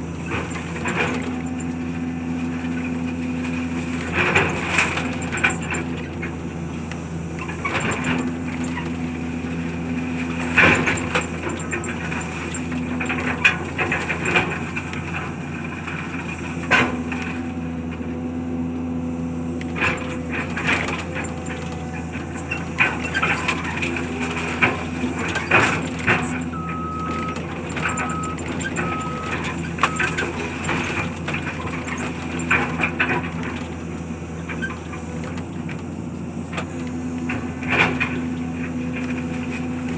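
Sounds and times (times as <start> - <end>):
diesel machinery running: 0.0 - 39.9
backup alarm beeps: 26.2 - 30.4.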